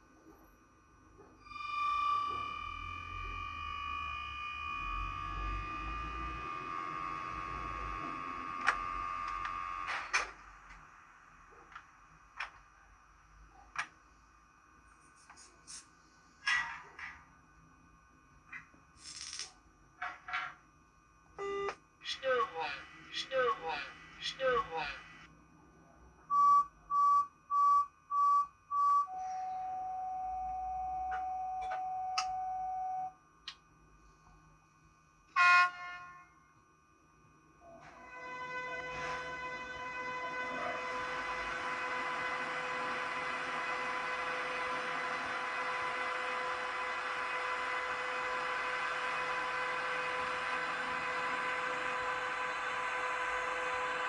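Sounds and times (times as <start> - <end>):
steady warning tone: 0.0 - 12.3, 20.7 - 33.2, 33.8 - 54.0
electric whine: 1.3 - 13.4, 37.5 - 54.0
short beeps: 26.3 - 33.2
train horn blast: 35.4 - 36.3, 38.0 - 41.8.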